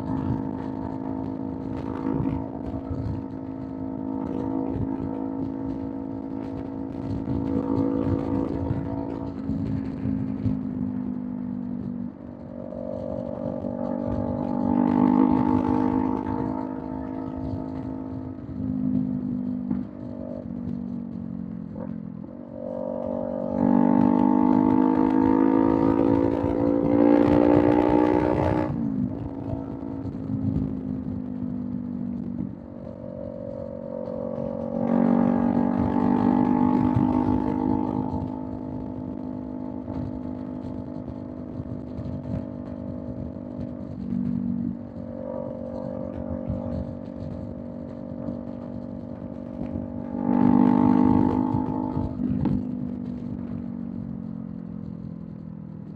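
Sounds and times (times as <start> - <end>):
motorcycle engine revving: 0.0 - 55.9
wind and road noise: 0.0 - 55.9.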